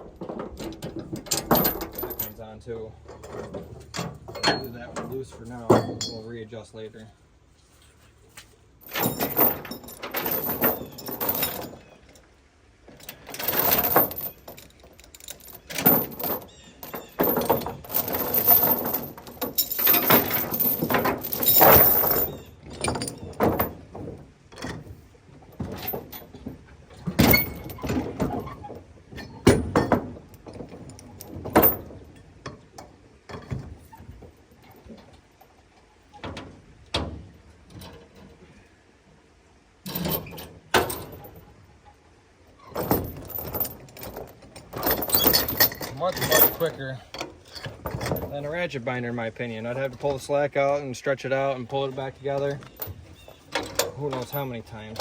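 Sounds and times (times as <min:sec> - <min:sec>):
steel chains clanking: 0:00.0 - 0:06.5, 0:08.8 - 0:12.3, 0:12.9 - 0:35.5, 0:39.8 - 0:41.6, 0:42.6 - 0:50.3, 0:51.7 - 0:55.0
sharp metal knocks: 0:03.4 - 0:06.3.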